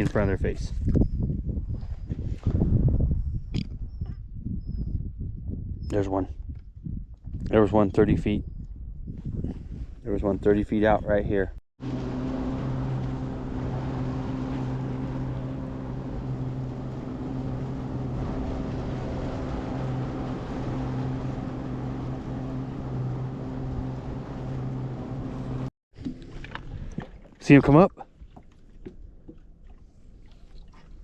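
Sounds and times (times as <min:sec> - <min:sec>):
boat motor humming: 0:11.8 - 0:26.6
water wash: 0:11.8 - 0:27.6.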